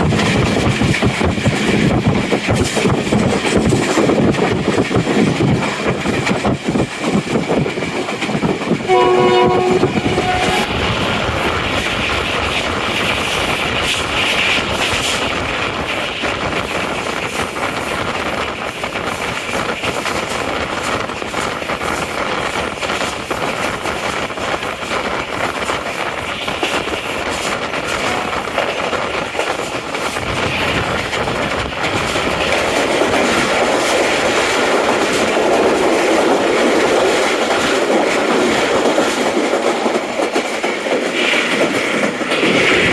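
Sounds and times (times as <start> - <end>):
train wheels rumbling and rattling: 0.0 - 42.9
train horn blast: 8.9 - 10.9.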